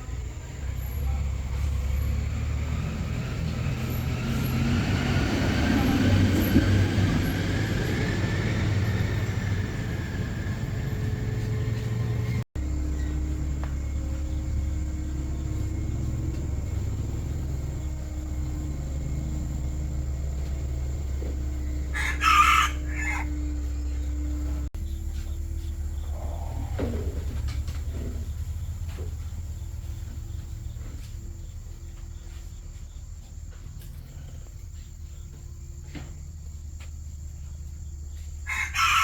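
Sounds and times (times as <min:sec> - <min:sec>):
low engine hum: 0:00.0 - 0:39.0
rooster crowing: 0:17.8 - 0:24.4, 0:38.4 - 0:39.0.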